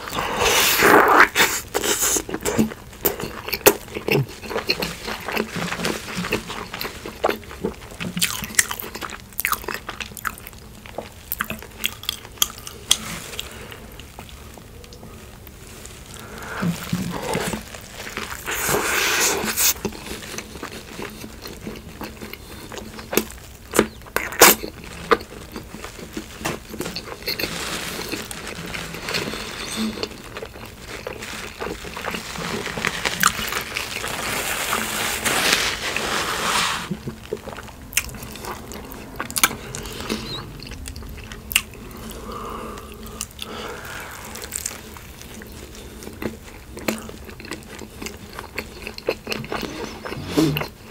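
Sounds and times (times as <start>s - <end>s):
biting and chewing: 0.0s - 36.0s, 36.9s - 50.9s
crunching food: 0.0s - 50.9s.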